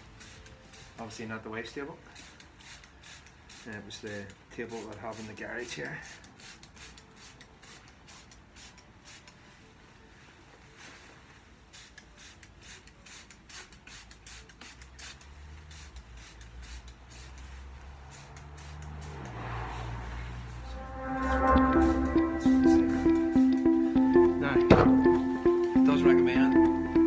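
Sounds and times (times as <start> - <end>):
spray bottle squirting: 0.1 - 1.0, 2.1 - 9.4, 11.7 - 19.8
low music: 20.6 - 27.0.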